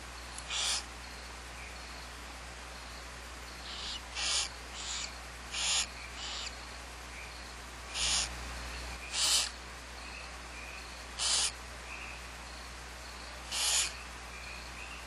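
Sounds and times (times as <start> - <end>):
low electrical hum: 0.0 - 15.0
owl raspy hissing calls: 0.4 - 0.9, 3.6 - 6.6, 7.9 - 8.4, 9.0 - 9.6, 11.1 - 11.6, 13.4 - 14.0.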